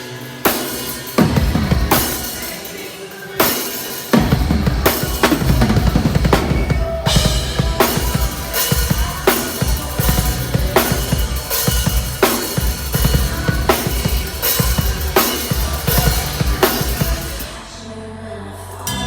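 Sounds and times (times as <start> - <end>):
metal band playing loudly: 0.0 - 17.8
heavy bass drum hits: 1.2 - 2.4, 4.2 - 17.6.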